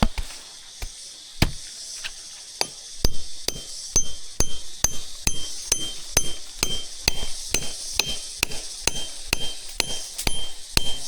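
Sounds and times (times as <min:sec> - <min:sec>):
hammer striking metal: 0:02.6 - 0:11.0.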